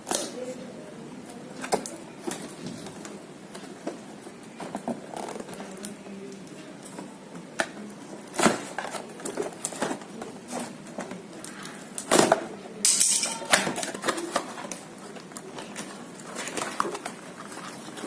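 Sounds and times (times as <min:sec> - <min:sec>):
packaging rustling: 0:01.3 - 0:12.4, 0:13.4 - 0:18.0.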